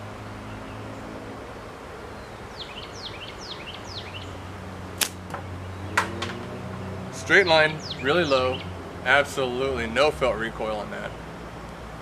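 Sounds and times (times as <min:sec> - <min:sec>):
bird singing downward notes: 0:02.2 - 0:04.4, 0:05.2 - 0:11.3.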